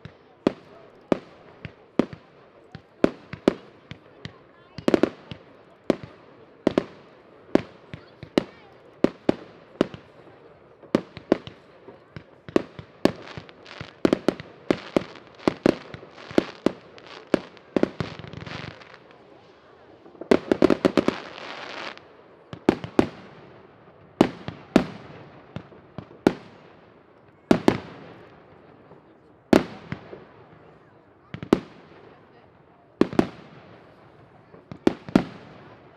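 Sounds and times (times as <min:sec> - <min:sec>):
firecrackers crackling: 0:00.0 - 0:30.7
fireworks bangs: 0:07.6 - 0:30.7, 0:33.0 - 0:35.9.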